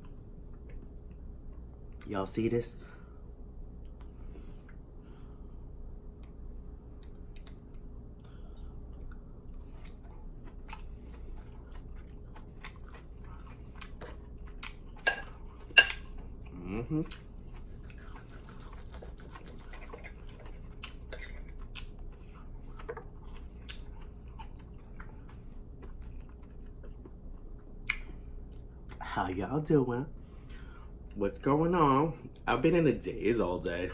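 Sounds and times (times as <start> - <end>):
close chewing: 7.0 - 29.1
person humming: 16.5 - 17.2.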